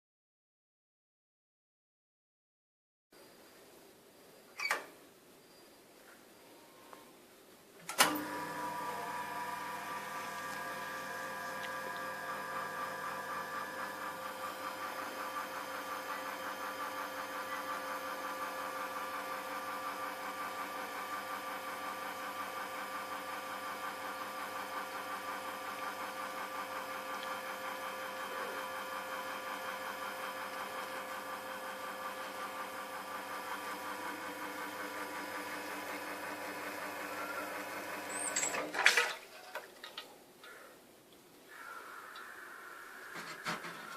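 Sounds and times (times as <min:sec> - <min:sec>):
espresso machine pump buzzing: 0:08.0 - 0:38.6.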